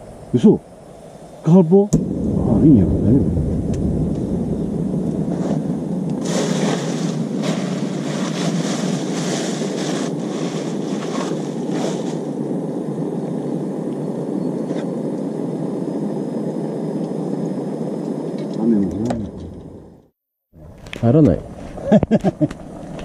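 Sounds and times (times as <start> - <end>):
crackly hissing noise: 0.0 - 23.0
wind noise on microphone: 1.9 - 13.5.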